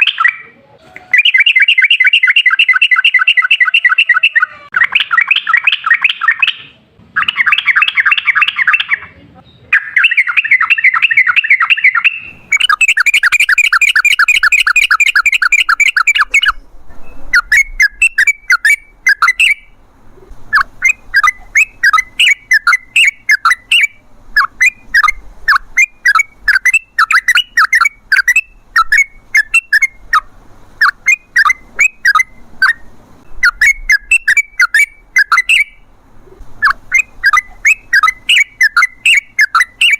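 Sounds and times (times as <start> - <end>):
bird chattering trills: 0.0 - 39.9
bird bubbling chirps: 9.7 - 39.9.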